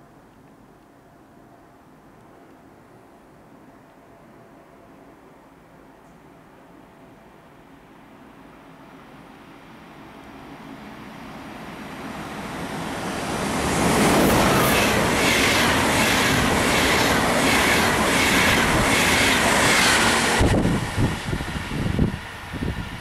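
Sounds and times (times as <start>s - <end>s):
passenger train passing: 0.9s - 23.0s
gusty wind buffeting: 10.7s - 23.0s.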